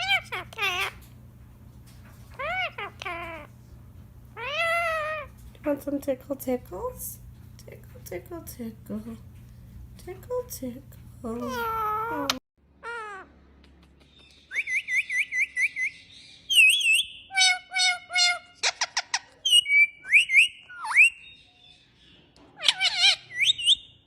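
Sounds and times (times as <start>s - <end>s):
pet bird whistling and calling: 2.3s - 3.5s, 14.1s - 21.9s, 22.6s - 24.0s.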